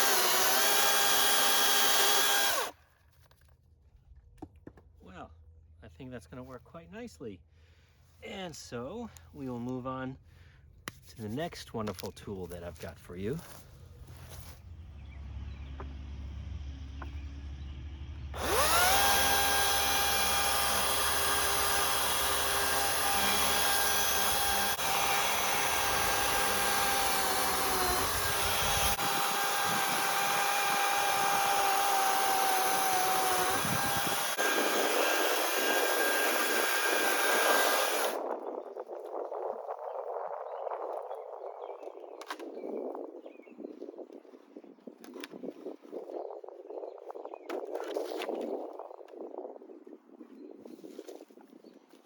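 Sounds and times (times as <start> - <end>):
power tool motor whining: 0.0 - 2.8, 18.4 - 38.2.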